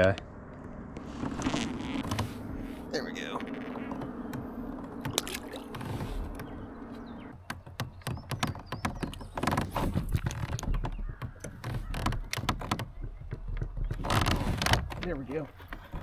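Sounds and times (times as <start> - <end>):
steady low hum: 0.0 - 7.5
fish thrashing on plastic kayak: 1.0 - 16.0.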